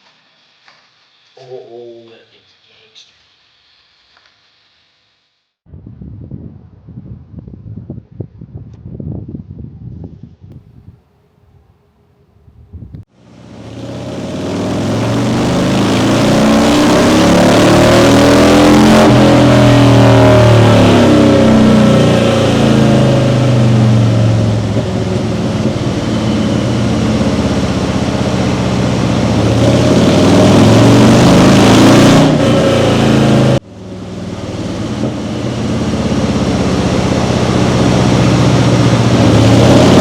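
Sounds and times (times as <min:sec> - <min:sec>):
motorcycle engine revving: 0:13.1 - 0:40.0.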